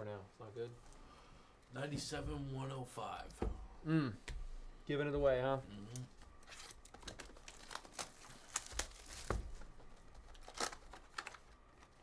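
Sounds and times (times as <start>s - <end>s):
wrapper crinkling and tearing: 5.9s - 12.0s.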